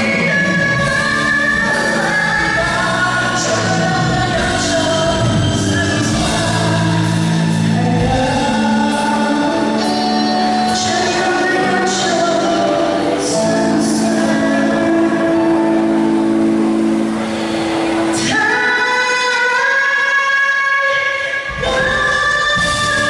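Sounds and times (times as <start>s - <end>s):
live band playing: 0.0s - 23.0s
person singing pop song: 0.0s - 23.0s.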